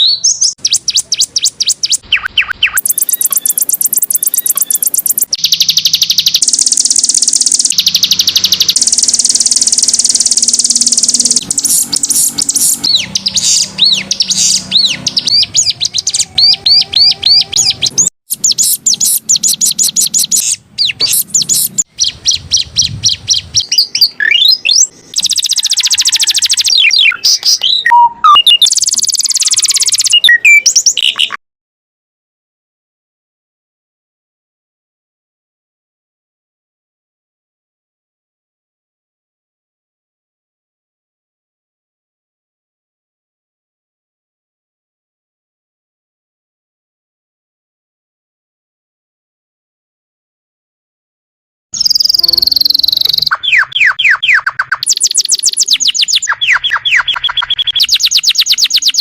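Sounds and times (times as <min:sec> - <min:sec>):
canary singing trills: 0:00.0 - 0:31.4, 0:51.8 - 0:59.0.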